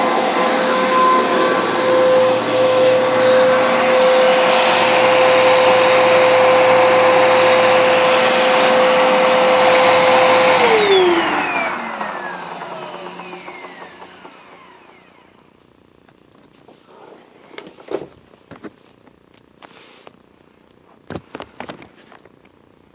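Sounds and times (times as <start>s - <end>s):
vacuum cleaner motor whine: 0.0s - 15.7s.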